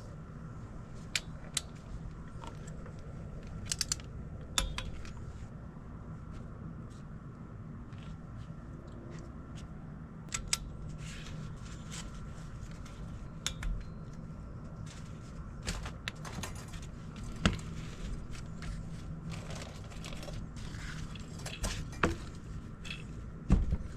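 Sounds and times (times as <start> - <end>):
hand tools and metal parts clicking: 1.1 - 5.3, 12.7 - 14.2, 15.6 - 17.8, 19.3 - 23.2.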